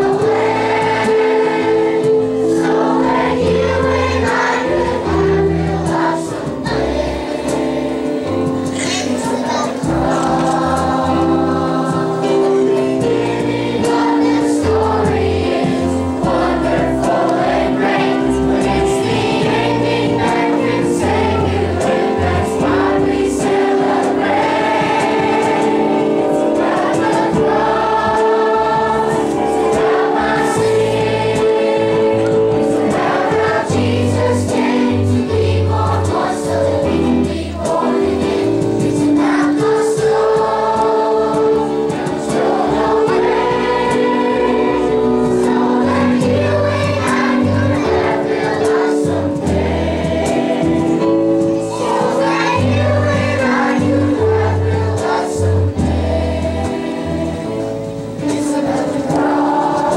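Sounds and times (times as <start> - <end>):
choir singing: 0.0 - 59.9
instrumental backing: 0.0 - 59.9.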